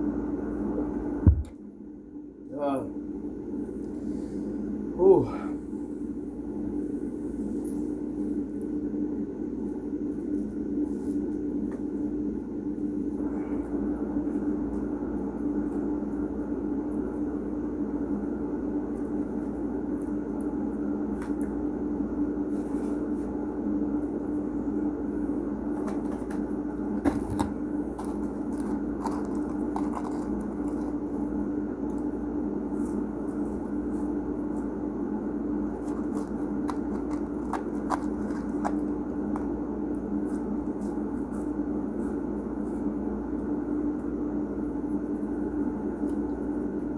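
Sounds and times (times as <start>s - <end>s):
steady low hum: 0.0s - 46.9s
packaging crackling: 27.0s - 31.2s, 35.8s - 39.5s
food crunching: 27.0s - 31.3s, 35.7s - 39.6s.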